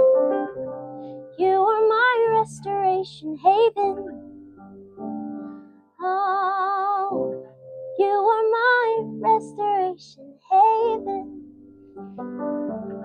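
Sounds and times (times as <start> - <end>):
held keyboard chords: 0.0 - 13.0
woman singing wordless notes: 1.4 - 4.2, 6.0 - 7.2, 8.0 - 11.3.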